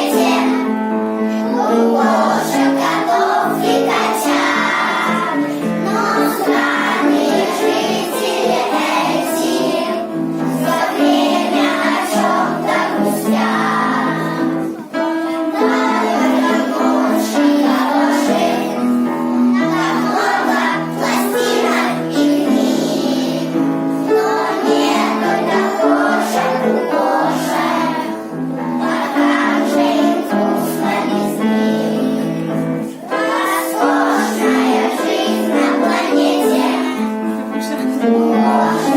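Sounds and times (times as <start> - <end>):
children singing together: 0.0 - 38.9
musical accompaniment: 0.0 - 38.9.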